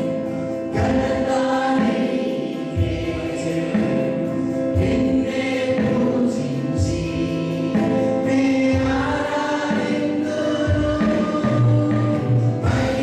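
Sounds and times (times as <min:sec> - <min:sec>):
choir singing worship song: 0:00.0 - 0:13.0
steady bass line: 0:02.6 - 0:13.0.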